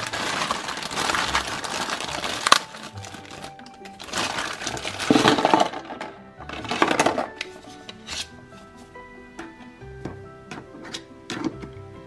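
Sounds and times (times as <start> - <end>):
plastic bag crinkling: 0.0 - 7.4
plastic toy dishes clattering: 3.7 - 8.3, 10.5 - 11.8.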